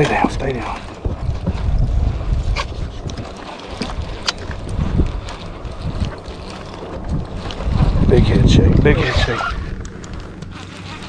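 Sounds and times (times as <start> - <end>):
wind buffeting microphone: 0.0 - 11.0
sharp clicks: 9.4 - 11.0.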